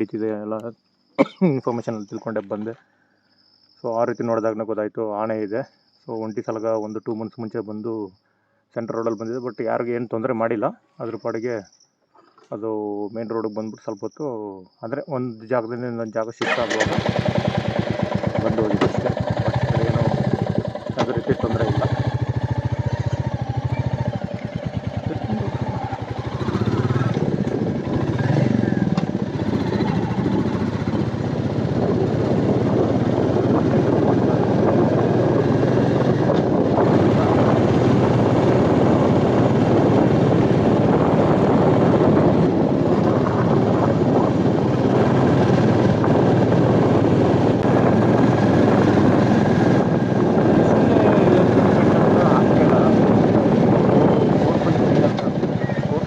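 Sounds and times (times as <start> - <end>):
motorcycle engine cruising: 16.4 - 56.0.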